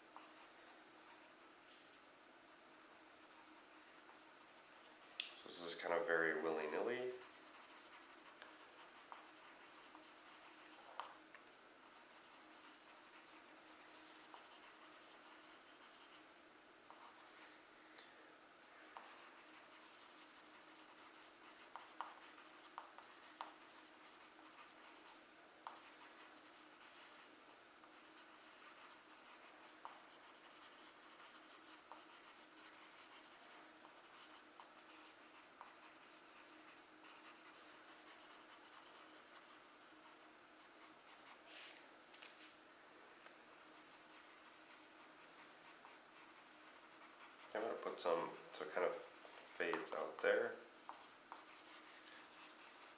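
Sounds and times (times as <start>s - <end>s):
pencil ticking on paper: 0.2s - 0.5s, 6.0s - 11.2s, 11.8s - 16.2s, 16.9s - 17.5s, 19.0s - 41.4s, 43.6s - 52.9s
pencil scratching on paper: 0.2s - 2.0s, 2.6s - 5.0s, 5.6s - 11.2s, 11.8s - 16.2s, 16.9s - 17.5s, 19.0s - 41.4s, 43.6s - 52.9s.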